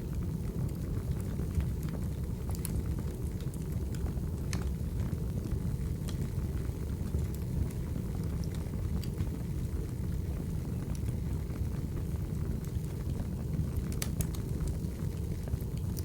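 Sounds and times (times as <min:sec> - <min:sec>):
wood fire crackling: 0:00.0 - 0:16.0
sharp pops of fire: 0:13.8 - 0:14.5.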